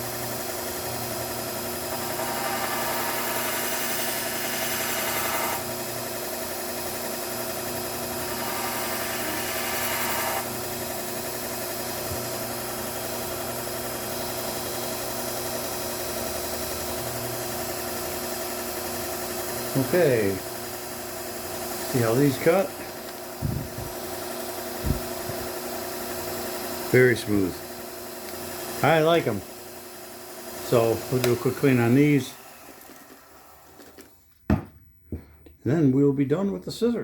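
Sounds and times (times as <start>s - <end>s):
belt sharpener motor running: 0.0s - 34.1s
blade grinding on belt: 1.9s - 5.8s, 8.1s - 15.6s, 21.5s - 25.5s.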